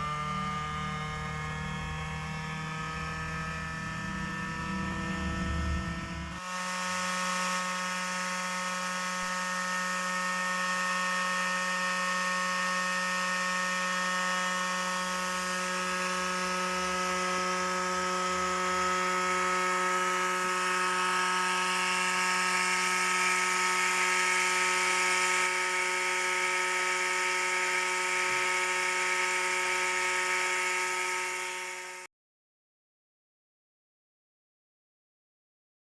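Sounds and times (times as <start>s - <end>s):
electric motor whirring: 0.0s - 32.1s.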